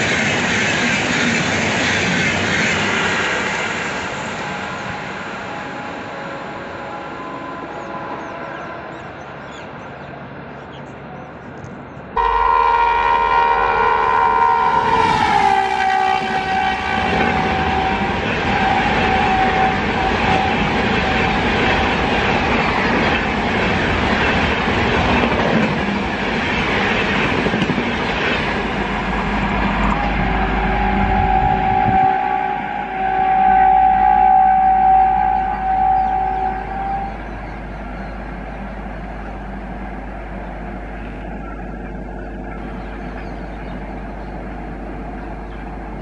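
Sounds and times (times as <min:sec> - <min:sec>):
loud multi-tone locomotive horn: 0:02.9 - 0:09.3, 0:12.2 - 0:23.3, 0:29.1 - 0:37.5
distant train horn: 0:02.9 - 0:09.5, 0:12.2 - 0:23.4, 0:28.9 - 0:39.8.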